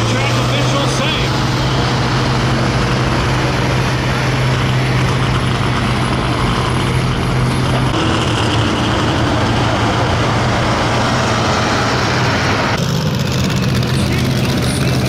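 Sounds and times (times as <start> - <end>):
tractor engine at high revs: 0.0 - 15.0.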